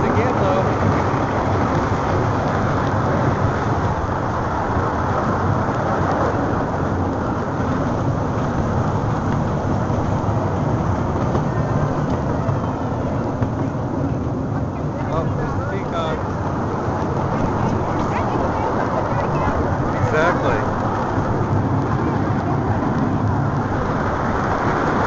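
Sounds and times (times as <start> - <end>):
steam train rumbling: 0.0 - 25.0.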